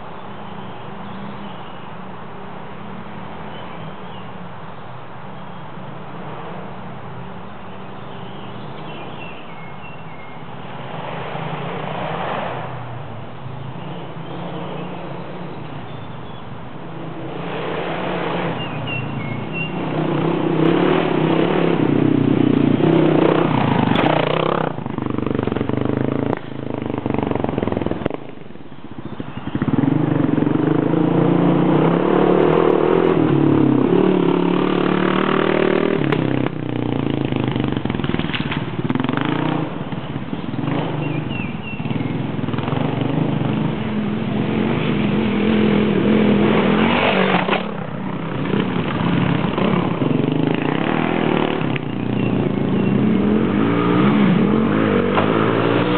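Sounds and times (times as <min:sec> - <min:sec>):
motorcycle engine revving: 0:17.0 - 0:28.4, 0:29.0 - 0:55.9.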